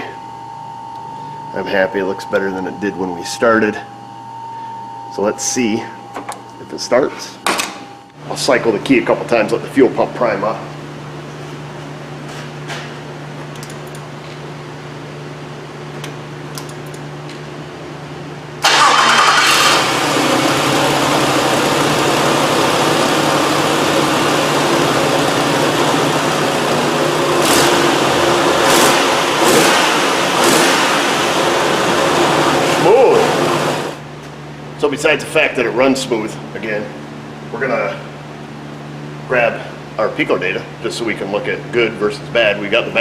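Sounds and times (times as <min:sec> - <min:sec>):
engine starting and running: 0:18.6 - 0:34.0.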